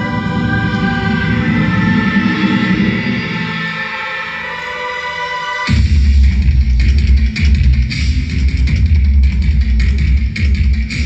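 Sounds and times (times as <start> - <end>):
electronic engine-like drone: 0.0 - 4.5.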